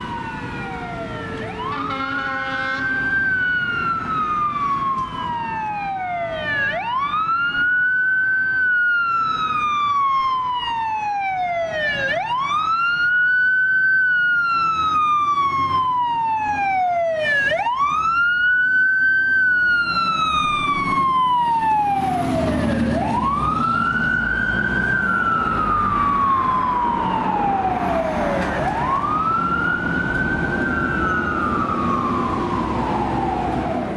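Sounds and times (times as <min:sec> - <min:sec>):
fire engine siren wailing: 0:00.0 - 0:33.9.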